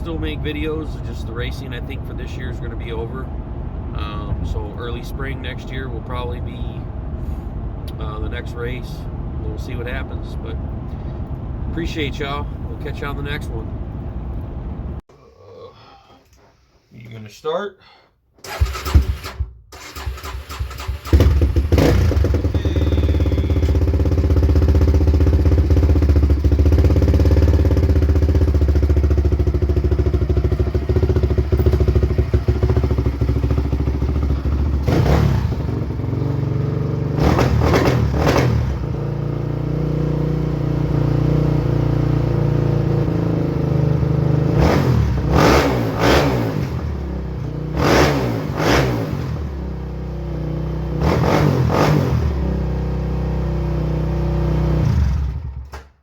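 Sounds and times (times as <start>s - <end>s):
small engine starting and running: 18.4s - 24.8s.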